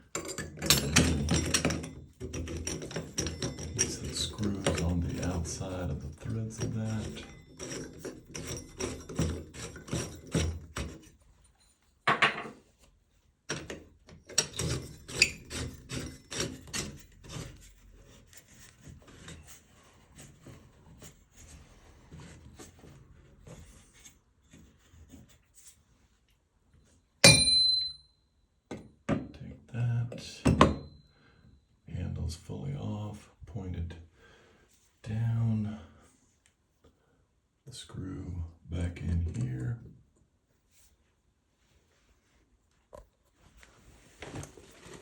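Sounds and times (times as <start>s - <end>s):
sharp metallic clink: 27.2s - 28.2s.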